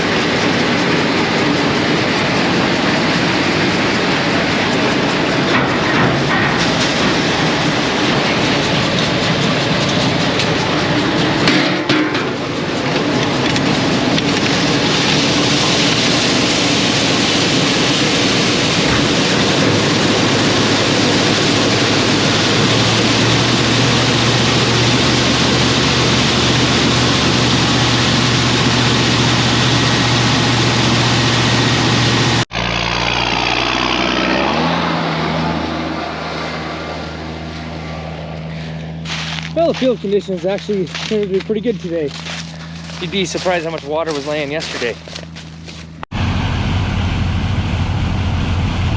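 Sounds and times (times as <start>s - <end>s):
farm machinery rushing: 0.0s - 48.9s
low engine hum: 0.0s - 48.9s
engine pitch stepping up: 12.4s - 44.7s.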